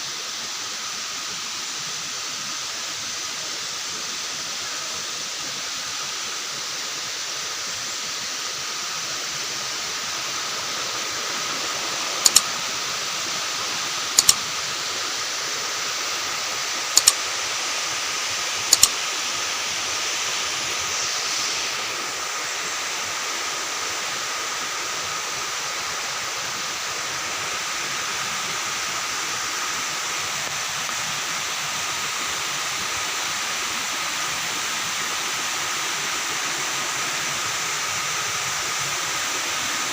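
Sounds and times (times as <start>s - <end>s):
waterfall rushing: 0.0s - 39.9s
sharp double clicks: 12.2s - 12.5s, 14.2s - 14.5s, 16.9s - 17.2s, 18.7s - 19.0s.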